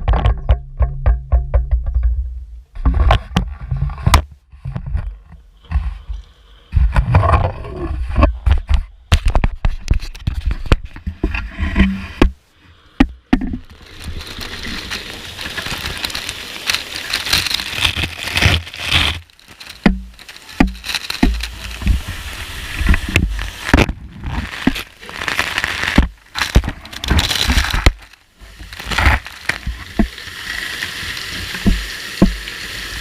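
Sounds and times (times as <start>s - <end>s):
knocks and rattles: 0.0s - 5.9s.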